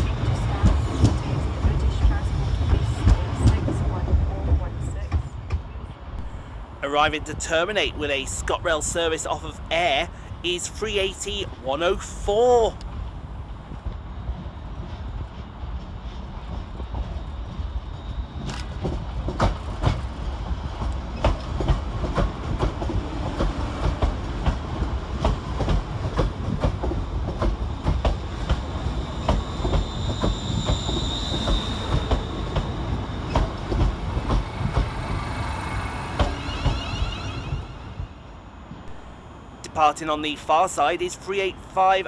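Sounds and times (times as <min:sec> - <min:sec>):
train rumble: 0:00.0 - 0:42.0
high wheel squeal: 0:29.0 - 0:33.4, 0:34.4 - 0:38.0.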